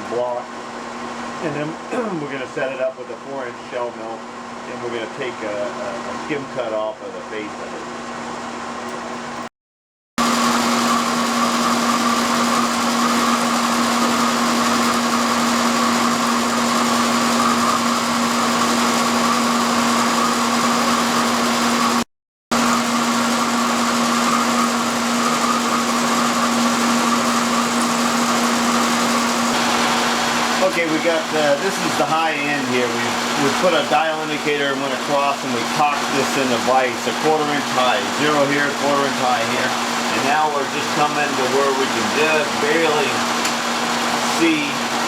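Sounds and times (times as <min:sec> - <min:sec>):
milling machine running: 0:10.2 - 0:45.0.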